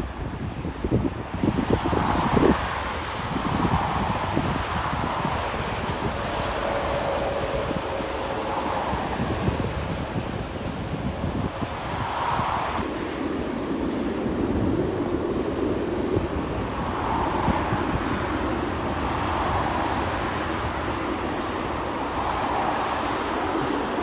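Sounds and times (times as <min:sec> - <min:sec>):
aircraft engine noise: 0:00.0 - 0:24.0
wind buffeting microphone: 0:00.0 - 0:24.0.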